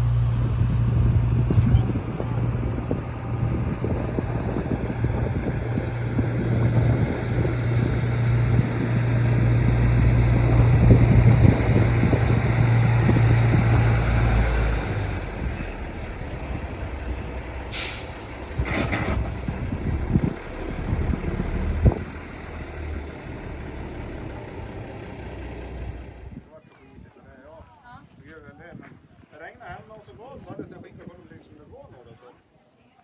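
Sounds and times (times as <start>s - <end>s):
diesel truck engine running: 0.0s - 26.4s
sharp hiss: 17.7s - 18.4s.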